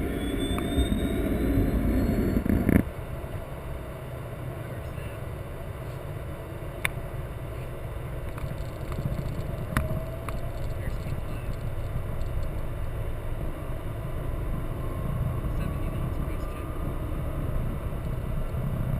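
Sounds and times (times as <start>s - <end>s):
low aircraft rumble: 0.0s - 18.9s
sharp clicks: 8.3s - 12.6s.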